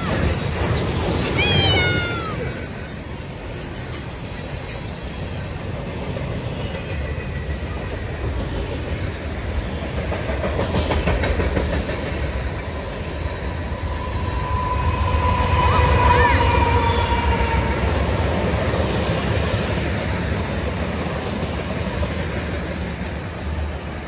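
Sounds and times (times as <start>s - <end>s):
train rolling past on rails: 0.0s - 24.0s.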